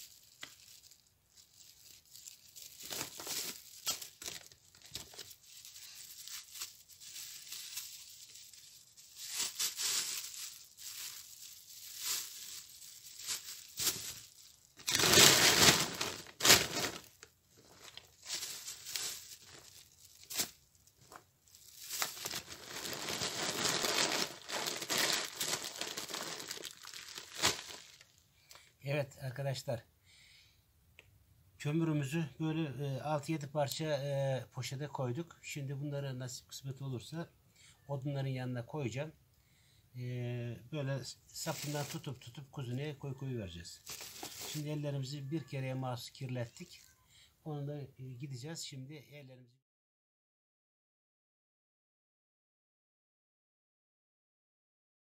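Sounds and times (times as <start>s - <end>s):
plastic bags crinkling: 0.0s - 28.2s, 41.4s - 42.2s, 43.8s - 45.6s.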